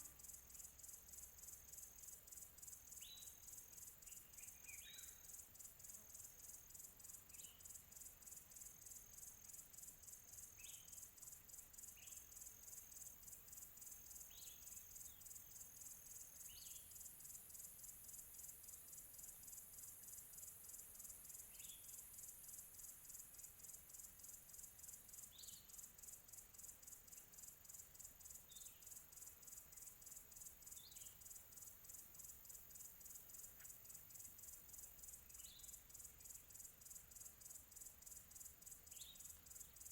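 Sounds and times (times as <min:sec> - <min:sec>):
crickets chirping faintly: 0:00.0 - 0:39.9.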